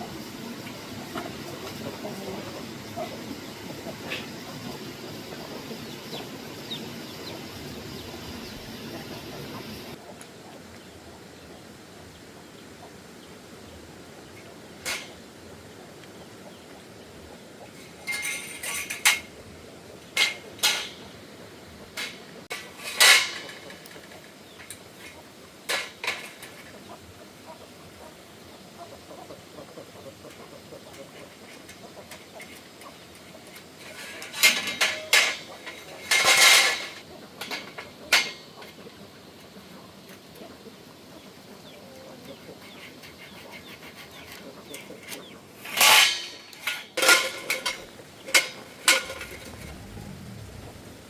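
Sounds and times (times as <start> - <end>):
metal clanks and clattering: 17.8 - 19.3, 20.1 - 21.1, 22.0 - 24.8, 33.5 - 38.8, 45.6 - 51.0.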